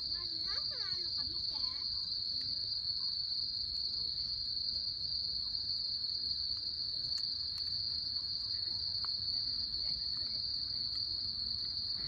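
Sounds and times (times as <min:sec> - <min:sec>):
insects trilling: 0:00.0 - 0:12.0
faint crackles: 0:06.3 - 0:12.0.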